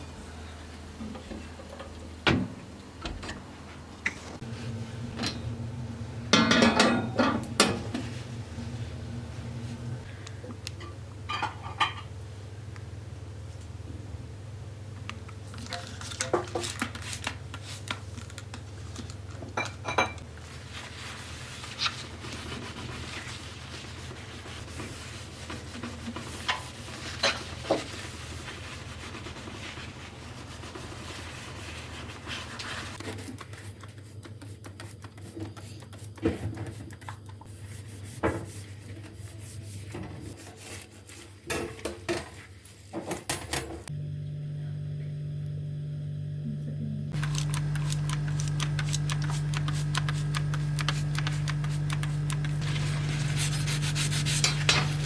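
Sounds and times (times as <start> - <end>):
steady low hum: 4.0 - 11.3, 43.9 - 55.0
dishes and cutlery clinking: 6.4 - 7.8, 10.8 - 12.1.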